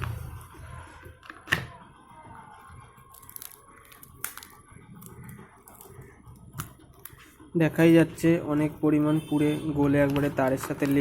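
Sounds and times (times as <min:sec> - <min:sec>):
plastic and wire clicking: 0:10.0 - 0:11.0.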